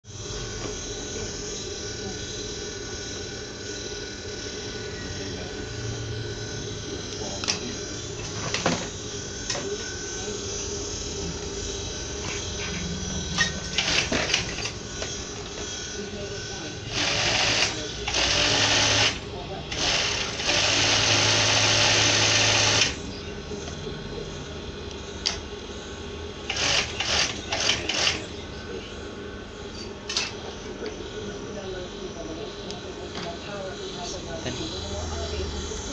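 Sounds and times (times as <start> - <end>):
sewing machine motor hum: 11.4 - 23.0, 26.4 - 28.3.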